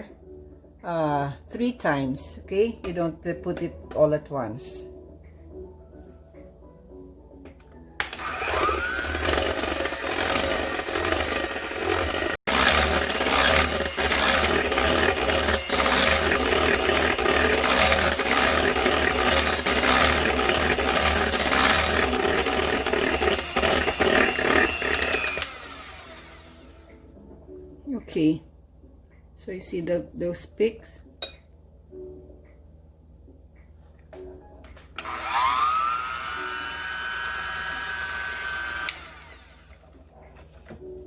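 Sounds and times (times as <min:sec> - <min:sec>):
electric hand mixer whipping: 0:08.1 - 0:27.0, 0:35.0 - 0:39.8.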